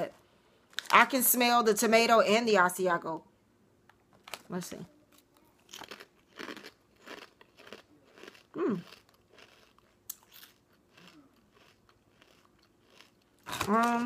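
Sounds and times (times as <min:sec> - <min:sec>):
person crunching potato chip: 0:05.6 - 0:14.0.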